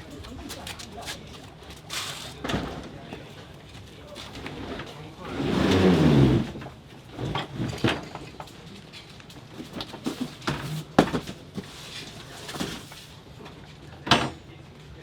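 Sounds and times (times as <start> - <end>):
boxes of parts knocking: 9.6 - 13.0.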